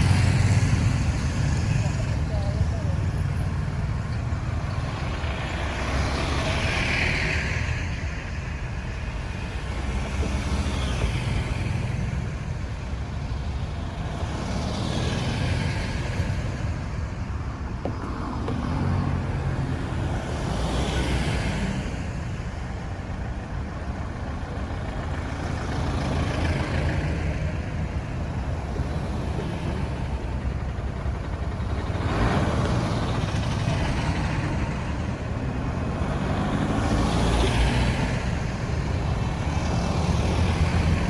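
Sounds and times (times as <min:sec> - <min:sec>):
low engine rumble: 0:00.0 - 0:06.9
vehicles passing: 0:00.0 - 0:41.0.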